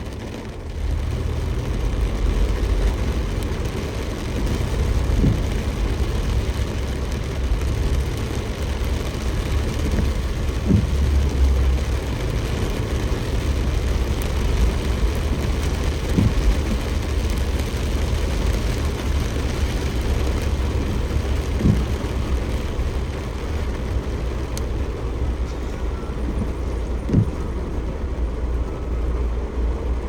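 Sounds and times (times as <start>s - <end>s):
heavy rain: 0.0s - 30.0s
short knocks: 16.0s - 16.8s, 26.3s - 27.6s.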